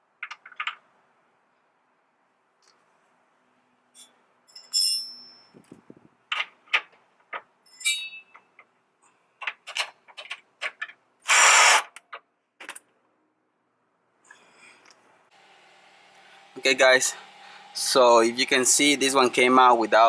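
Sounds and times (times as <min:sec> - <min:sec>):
tools and metal parts clanking: 0:04.0 - 0:05.7, 0:06.3 - 0:08.7, 0:09.4 - 0:11.0, 0:12.0 - 0:13.0.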